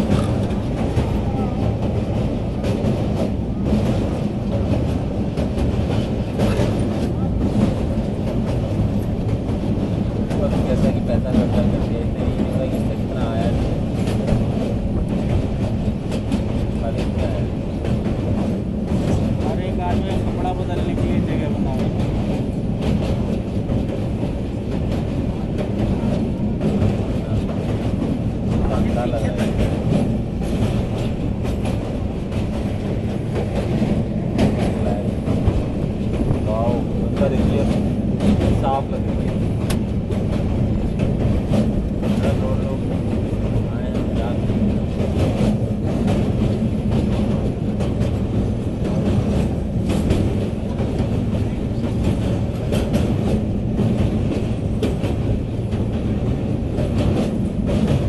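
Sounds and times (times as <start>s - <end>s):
train rumbling over bridge: 0.0s - 58.0s
sharp clacks: 13.4s - 58.0s.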